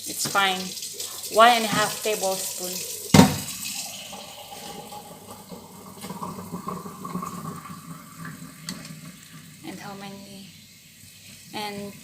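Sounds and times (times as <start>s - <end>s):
water running from kitchen tap: 0.0s - 12.0s.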